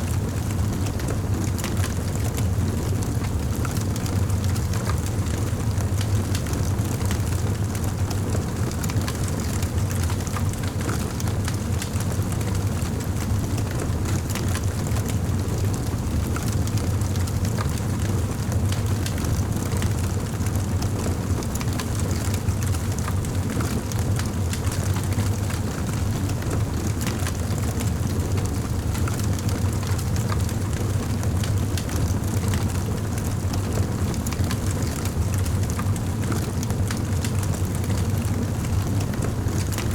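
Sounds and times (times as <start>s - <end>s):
wood fire crackling: 35.7s - 39.8s.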